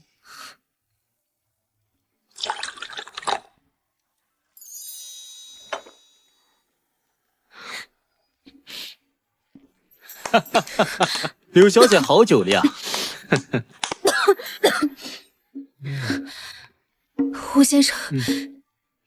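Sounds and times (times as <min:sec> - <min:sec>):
person gulping: 0:02.4 - 0:03.5
short breaths: 0:12.7 - 0:13.3, 0:14.4 - 0:16.8.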